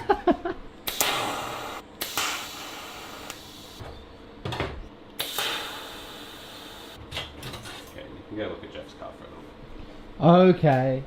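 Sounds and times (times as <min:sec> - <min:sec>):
welder crackling hiss: 0:00.9 - 0:03.8, 0:05.2 - 0:07.0.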